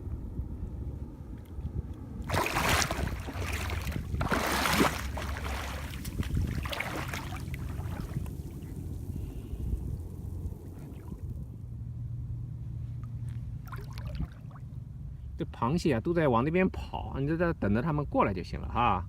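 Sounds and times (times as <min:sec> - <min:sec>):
wind rumble on microphone: 0:00.0 - 0:19.0
water splashing and sloshing: 0:02.2 - 0:09.4, 0:10.1 - 0:11.4, 0:13.0 - 0:14.8.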